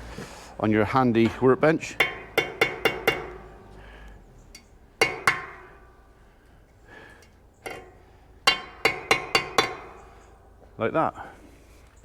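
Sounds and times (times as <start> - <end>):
hammer striking metal pin: 2.0 - 3.8, 4.6 - 6.0, 7.2 - 10.3.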